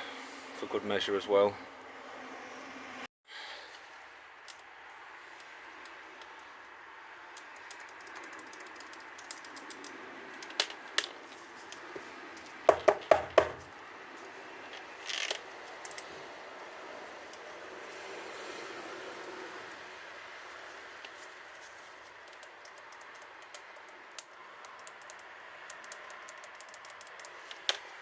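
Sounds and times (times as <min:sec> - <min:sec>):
small parts and tools clicking: 0:05.3 - 0:06.6, 0:07.3 - 0:13.7, 0:14.7 - 0:16.2, 0:20.8 - 0:28.0
sharp knocks: 0:12.7 - 0:13.7.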